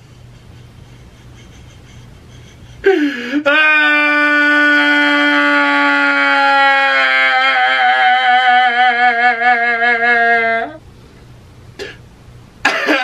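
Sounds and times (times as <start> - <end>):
man wailing: 2.8 - 10.8.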